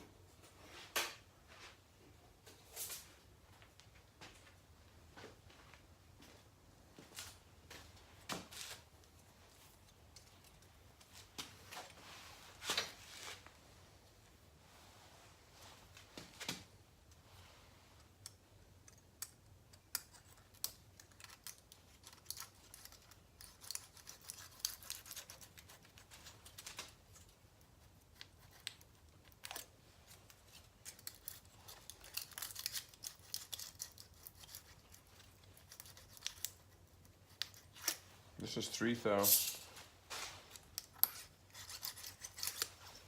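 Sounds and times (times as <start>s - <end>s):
small metallic clicks and scrapes: 18.2s - 27.4s, 28.1s - 38.1s, 40.5s - 43.0s.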